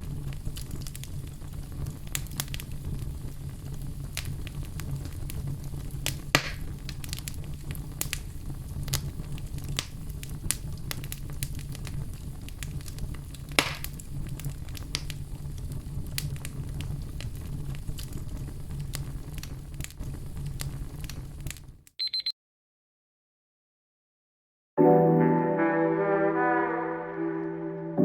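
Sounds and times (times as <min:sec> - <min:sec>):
loud fire pops: 0:00.0 - 0:21.8
wood fire crackling: 0:00.0 - 0:21.9.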